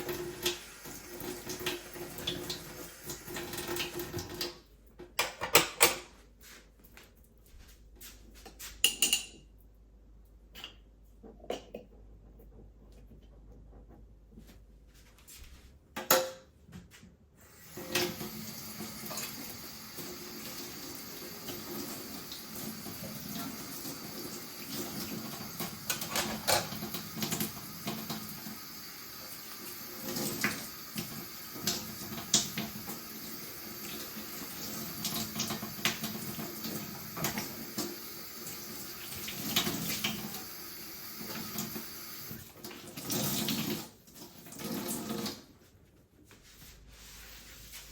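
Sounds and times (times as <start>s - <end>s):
water running into a sink: 0.0s - 4.6s, 17.5s - 45.5s
dishes clinking: 8.8s - 9.5s.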